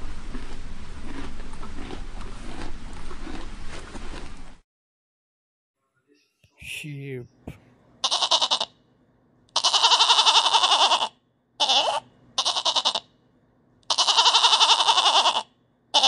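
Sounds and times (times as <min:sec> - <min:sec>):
sheep bleating: 0:08.0 - 0:08.7, 0:09.5 - 0:13.1, 0:13.8 - 0:16.0.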